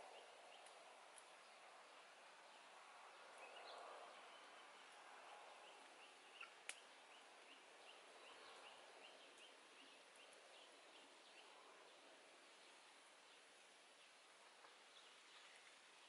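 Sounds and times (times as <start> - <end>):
small bird chirping: 5.6 - 11.6.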